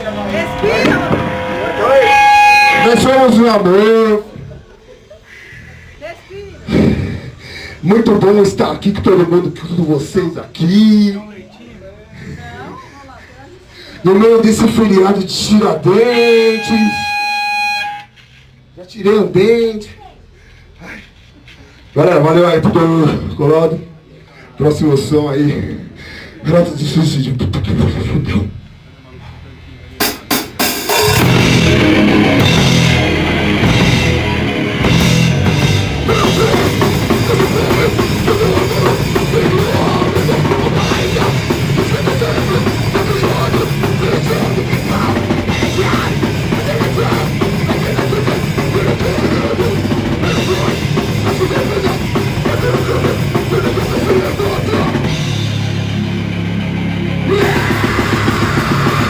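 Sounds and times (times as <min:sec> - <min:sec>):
live rock band playing: 0:00.0 - 0:03.4, 0:30.0 - 0:59.0
pounding drum kit: 0:00.0 - 0:03.6, 0:30.0 - 0:59.0.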